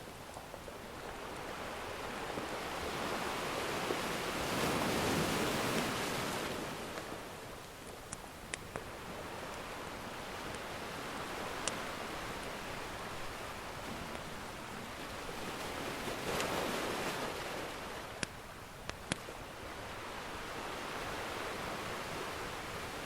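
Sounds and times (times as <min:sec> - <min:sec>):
ocean surf washing: 0:00.0 - 0:23.0
wood fire crackles: 0:04.6 - 0:15.7.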